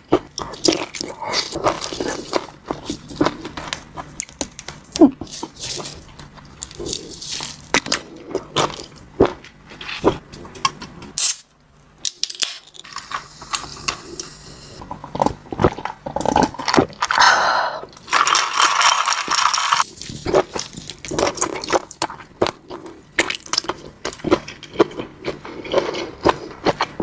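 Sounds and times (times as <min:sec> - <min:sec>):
chewing and biting food: 0:00.0 - 0:10.2, 0:18.2 - 0:27.0.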